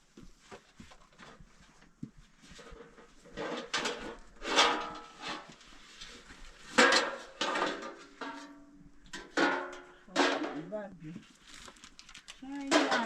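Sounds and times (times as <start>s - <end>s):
household wares clattering: 2.4s - 11.3s, 12.3s - 13.0s.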